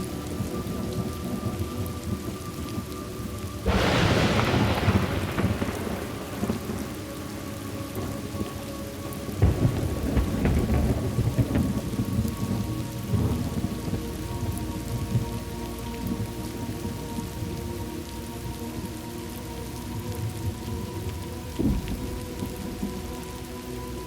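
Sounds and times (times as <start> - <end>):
steady rain: 0.0 - 24.0
rolling thunder: 3.6 - 15.4.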